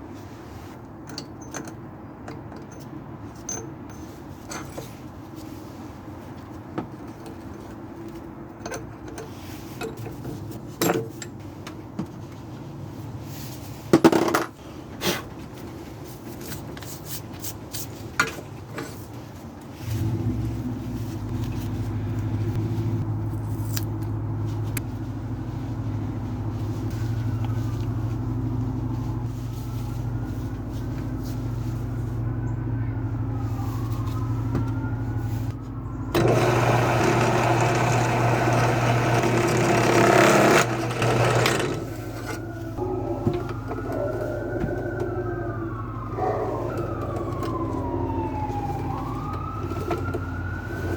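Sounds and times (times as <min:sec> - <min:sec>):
metal clinks and knocks: 0:01.0 - 0:05.0
drill motor running: 0:36.1 - 0:42.4.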